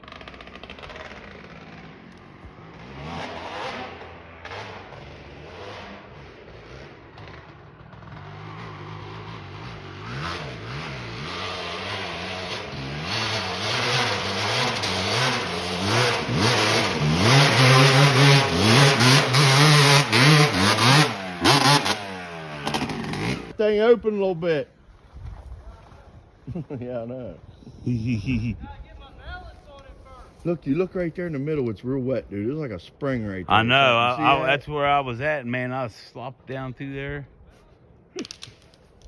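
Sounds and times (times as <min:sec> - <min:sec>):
dirt bike engine revving: 0:00.0 - 0:23.6.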